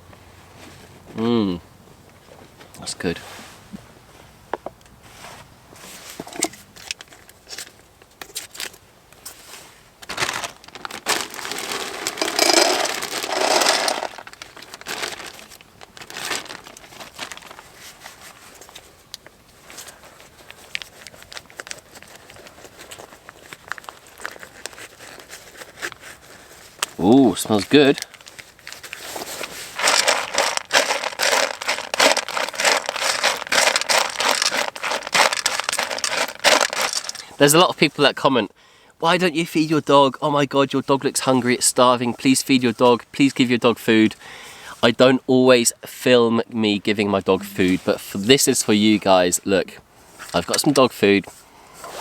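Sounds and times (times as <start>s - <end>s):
crinkling handling noise: 4.7s - 38.0s.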